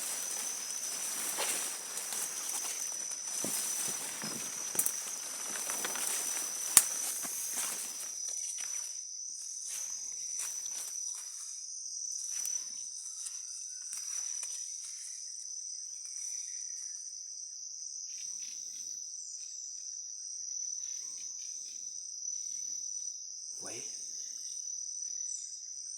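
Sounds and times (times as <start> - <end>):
footsteps on leaf litter: 0.0 - 8.8
insects droning: 0.0 - 25.9.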